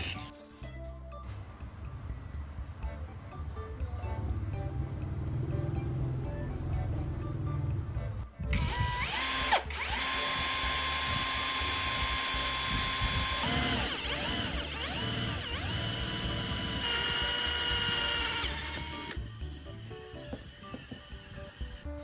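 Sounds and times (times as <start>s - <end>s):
power tool motor running: 0.0s - 0.4s, 8.5s - 22.0s.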